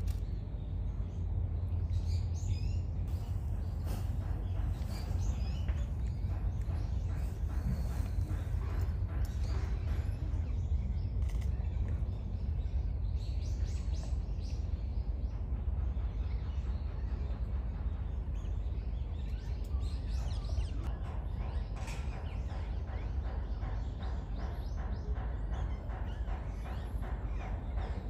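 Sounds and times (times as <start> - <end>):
low outdoor rumble: 0.0 - 28.0
small birds chirping: 0.0 - 28.0.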